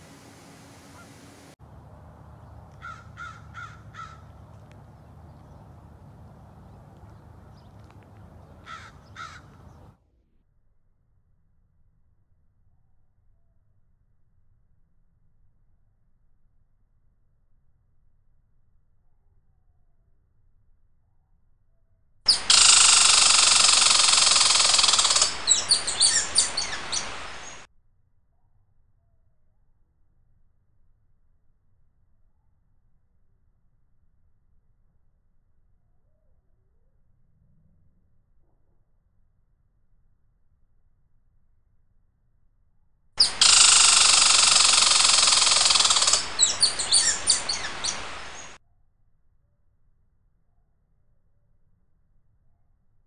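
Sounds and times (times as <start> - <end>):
bird buzzy trill: 22.3 - 27.7, 43.2 - 48.6
quick falling bird chirps: 22.3 - 27.7, 43.2 - 48.6.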